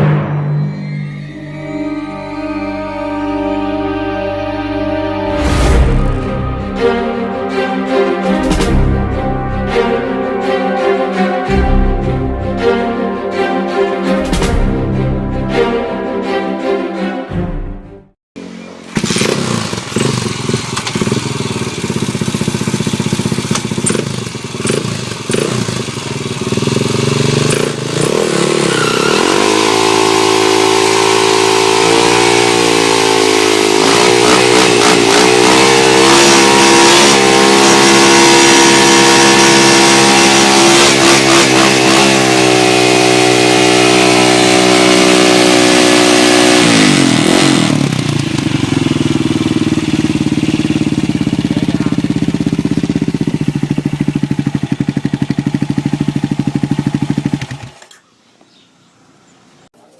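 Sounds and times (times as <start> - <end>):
motorcycle engine revving: 5.3 - 10.2, 18.4 - 58.0.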